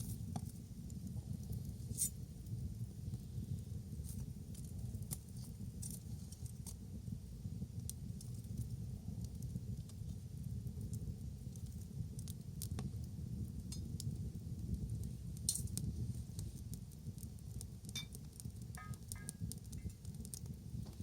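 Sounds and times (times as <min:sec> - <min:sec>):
bonfire crackling and popping: 0:00.0 - 0:21.0
low fire rumble: 0:00.0 - 0:21.0.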